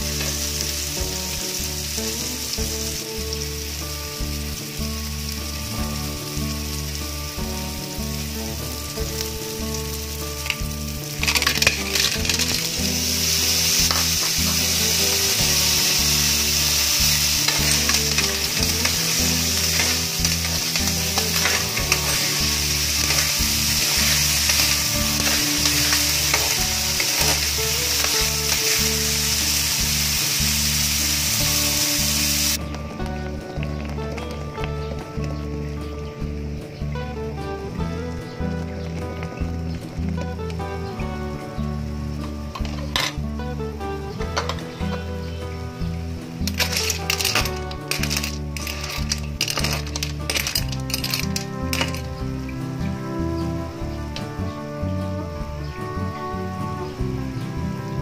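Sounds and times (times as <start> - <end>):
food sizzling in a wok: 0.0 - 32.6, 37.2 - 58.0
clam shells clattering: 11.2 - 12.7, 17.4 - 28.2, 46.5 - 52.1.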